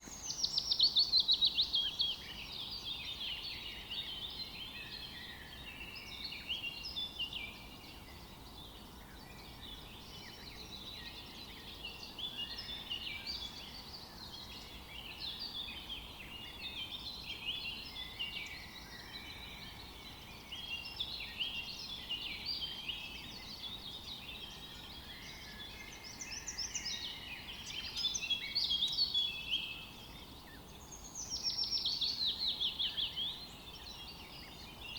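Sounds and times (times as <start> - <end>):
faint steady hiss: 0.0 - 34.9
small birds chirping and twittering: 0.0 - 34.9.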